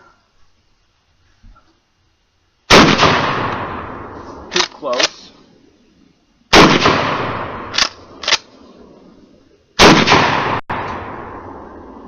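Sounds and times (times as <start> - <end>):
shotgun blasts echoing: 2.7 - 5.2, 6.5 - 8.5, 9.8 - 12.0.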